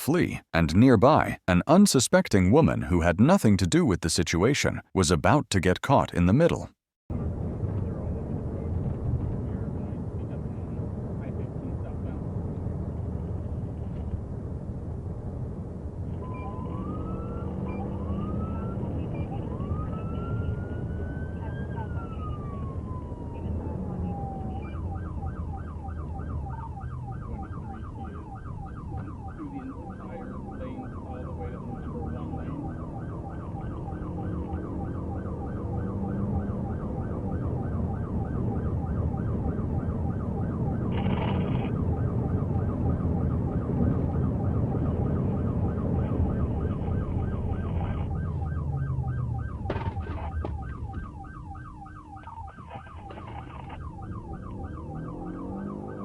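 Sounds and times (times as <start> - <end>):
engine and road noise: 0.0 - 56.0
police siren yelping: 16.2 - 56.0.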